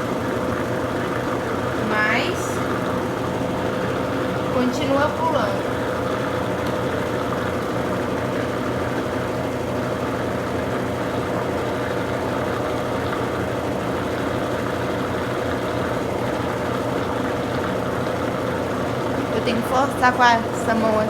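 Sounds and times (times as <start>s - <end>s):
washing machine spinning hum: 0.0s - 21.0s.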